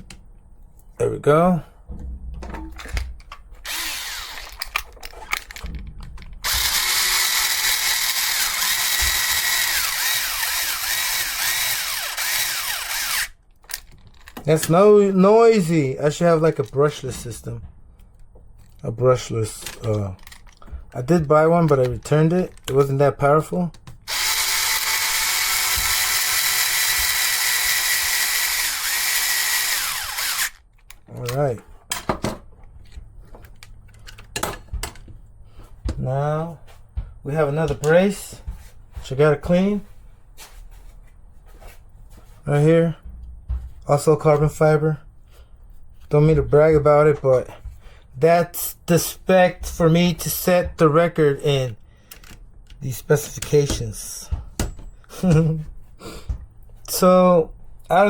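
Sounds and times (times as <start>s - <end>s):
electric screwdriver whining: 3.6s - 5.5s, 6.4s - 13.4s, 24.1s - 30.6s.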